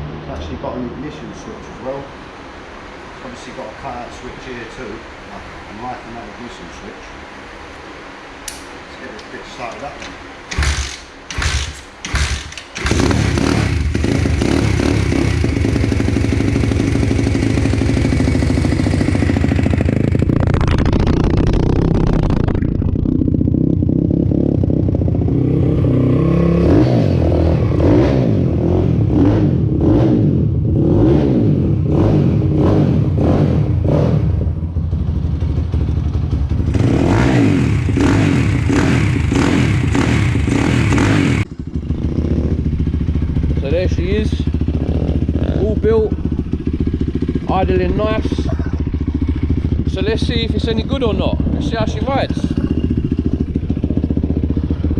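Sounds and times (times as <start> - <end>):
motorbike engine starting and idling: 9.2 - 25.8, 32.1 - 54.9.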